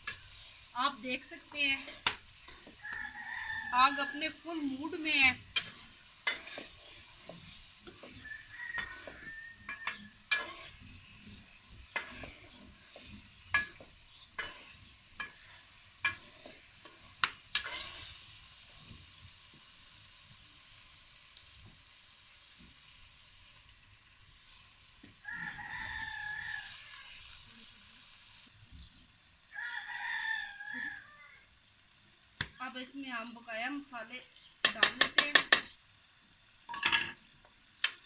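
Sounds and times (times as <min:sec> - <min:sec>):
metal spoon scraping a pan: 0:00.0 - 0:19.0
chicken sizzling in hot oil: 0:00.0 - 0:38.0.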